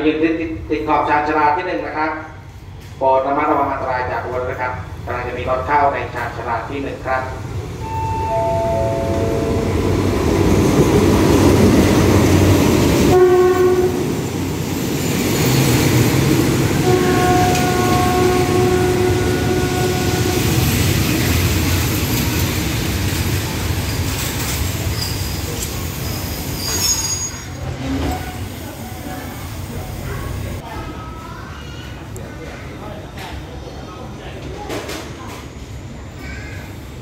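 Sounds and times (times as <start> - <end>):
locomotive rumble: 7.4 - 30.6
train horn blasts: 13.1 - 14.2, 16.8 - 20.7
high brake squeals: 24.9 - 28.5.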